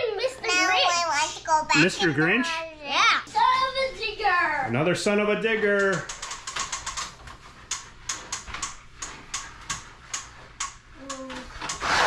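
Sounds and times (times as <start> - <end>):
plastic toy clicking: 5.8 - 7.1.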